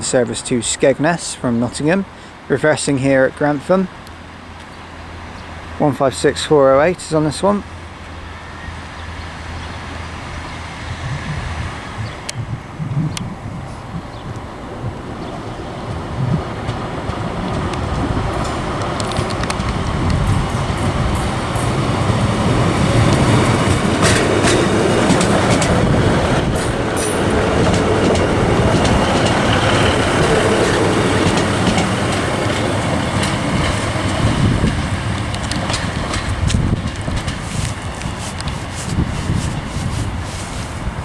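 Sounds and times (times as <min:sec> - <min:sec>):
diesel train engines running: 0:00.0 - 0:41.0
train wheels clicking over rail joints: 0:13.8 - 0:41.0.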